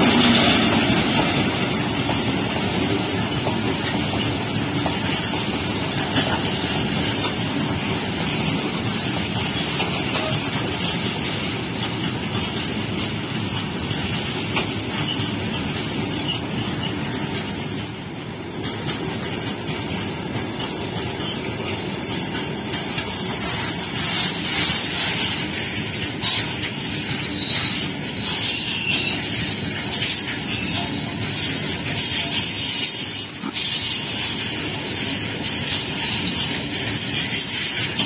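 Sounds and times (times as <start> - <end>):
freight wagons rolling past: 18.5 - 38.0
high-pitched wheel squeal: 23.1 - 38.0.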